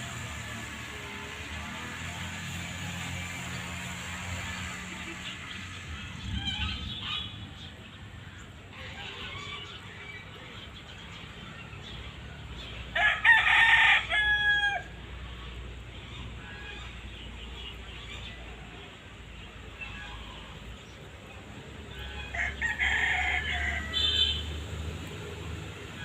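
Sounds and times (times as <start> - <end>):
rooster crowing: 12.9 - 15.0, 21.9 - 24.4.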